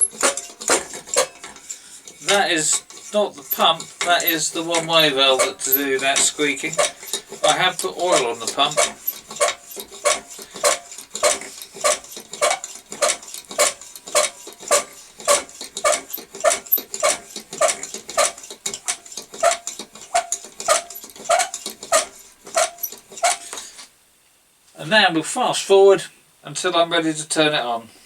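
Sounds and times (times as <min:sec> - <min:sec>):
pump valve squeaking: 0:00.0 - 0:23.7
hand pump strokes: 0:00.0 - 0:23.9.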